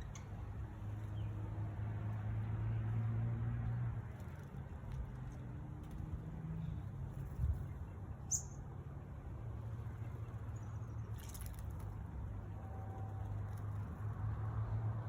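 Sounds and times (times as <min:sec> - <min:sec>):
bird chirp: 0:07.6 - 0:08.7.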